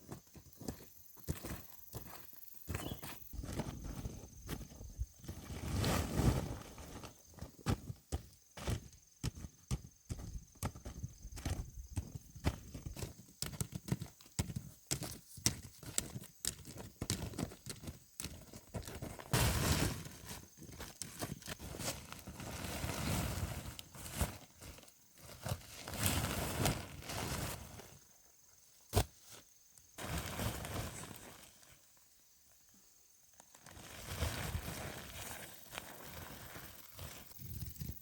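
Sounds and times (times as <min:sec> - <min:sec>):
rustling: 0:02.7 - 0:07.9, 0:18.6 - 0:28.1
horse hooves clopping: 0:08.1 - 0:19.3.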